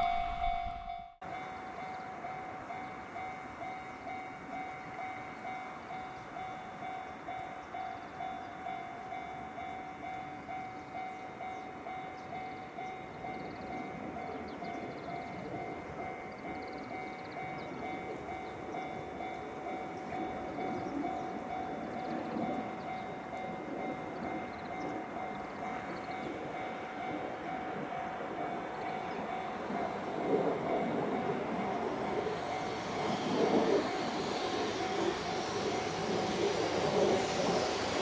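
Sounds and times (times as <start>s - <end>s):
high-pitched hum: 0.0s - 1.2s
distant freight train rumble: 0.0s - 38.0s.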